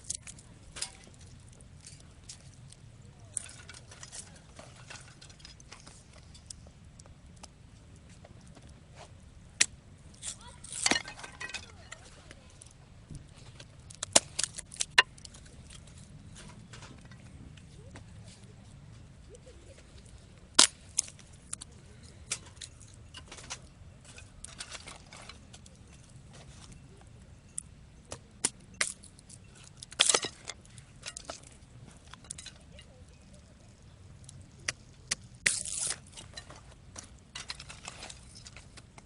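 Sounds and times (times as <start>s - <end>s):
wood fire crackling and popping: 0.0s - 39.0s.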